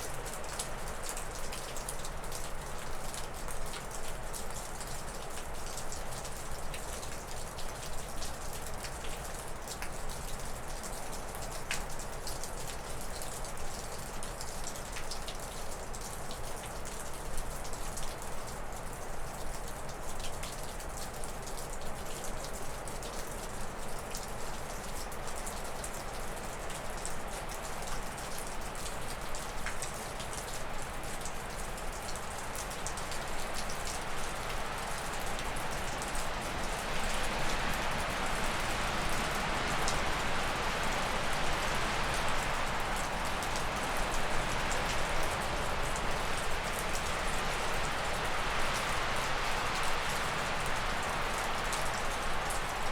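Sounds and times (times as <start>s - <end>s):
meltwater dripping off roof: 0.0s - 52.9s
wind gusting through trees: 32.8s - 52.9s.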